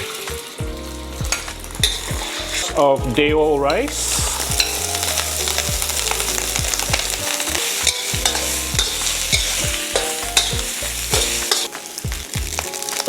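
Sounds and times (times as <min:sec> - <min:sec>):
rice sizzling in a wok: 0:00.0 - 0:13.0
spatula scraping a wok: 0:01.4 - 0:02.8, 0:03.7 - 0:11.7.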